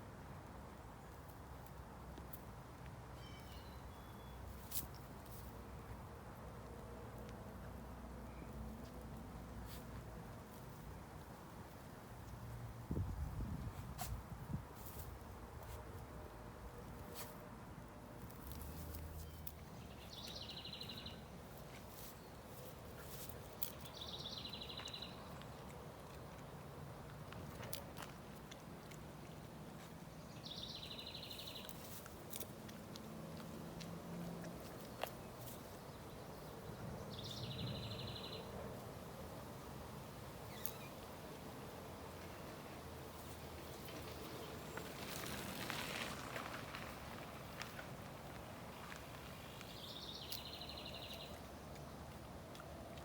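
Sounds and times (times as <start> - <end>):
faint outdoor background noise: 0.0 - 53.0
songbird singing: 3.2 - 5.4, 18.4 - 26.6, 29.2 - 33.8, 34.4 - 38.8, 40.4 - 41.3, 47.6 - 53.0.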